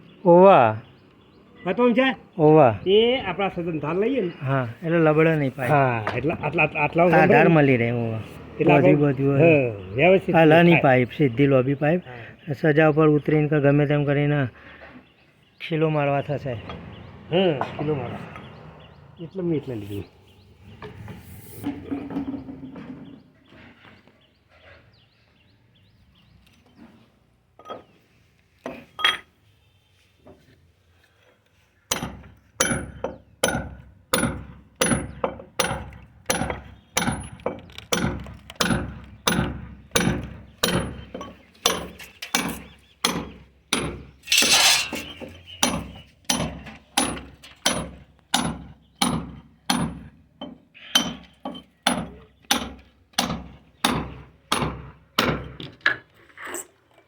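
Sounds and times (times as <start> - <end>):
hammer striking metal chisel: 31.9 - 55.6
grating scrape: 44.3 - 45.2.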